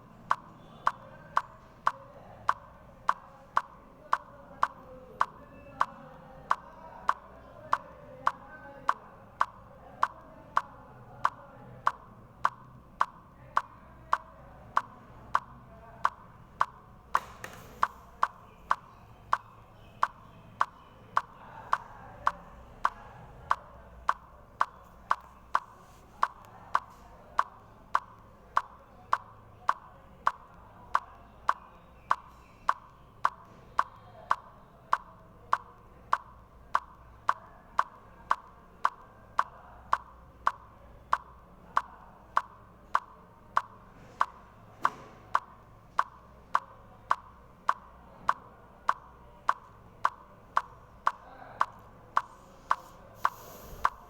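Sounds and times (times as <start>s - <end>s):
clock ticking: 0.0s - 17.0s, 17.8s - 54.0s.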